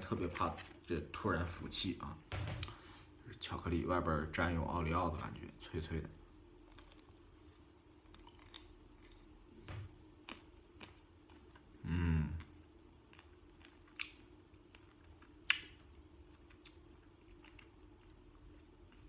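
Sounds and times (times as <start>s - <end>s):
crunchy chewing: 6.7s - 9.3s, 12.3s - 19.0s
person humming: 11.8s - 12.4s.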